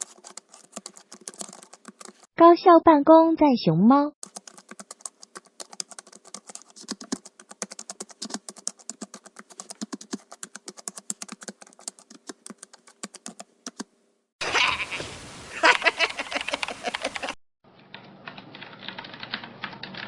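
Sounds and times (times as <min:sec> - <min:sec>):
computer keyboard typing: 0:00.0 - 0:02.3, 0:04.2 - 0:13.9, 0:16.3 - 0:17.3, 0:17.9 - 0:20.0.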